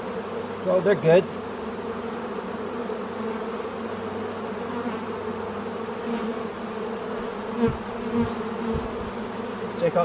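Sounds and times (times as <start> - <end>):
honeybees buzzing: 0.0 - 10.0.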